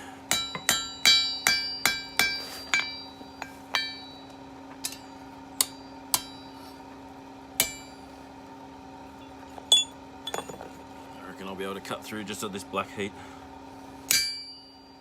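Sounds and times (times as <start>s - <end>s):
hammer ringing on anvil: 0.3s - 6.6s, 7.6s - 8.0s, 14.1s - 15.0s.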